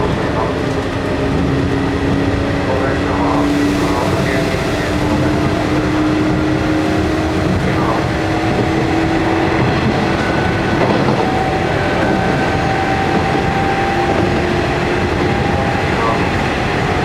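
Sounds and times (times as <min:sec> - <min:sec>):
train wheels rumbling: 0:00.0 - 0:17.0
train motor whine: 0:01.4 - 0:14.4
higher whine: 0:01.4 - 0:16.3.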